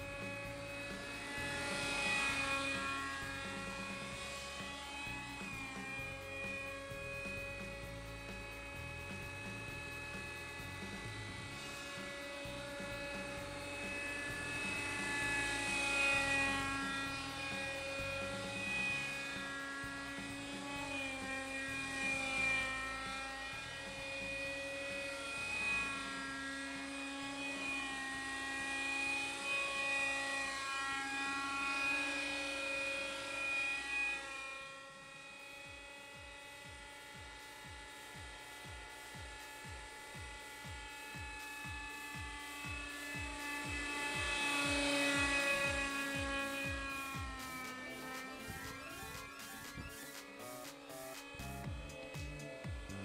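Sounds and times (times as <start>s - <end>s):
model helicopter engine buzzing: 0.0s - 53.0s.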